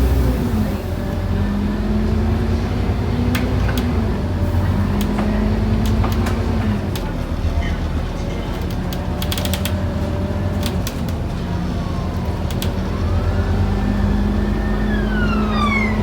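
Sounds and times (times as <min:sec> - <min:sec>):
bus diesel engine running: 0:00.0 - 0:16.0
bodywork rattles and clicks: 0:05.0 - 0:11.4
rising and falling whine: 0:12.9 - 0:16.0.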